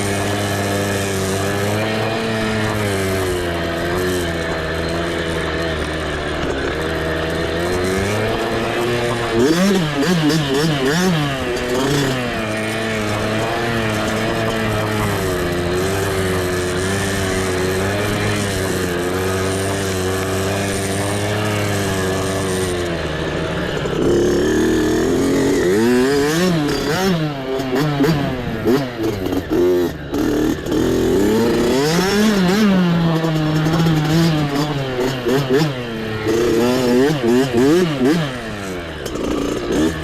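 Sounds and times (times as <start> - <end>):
mini bike engine revving: 0.0 - 40.0.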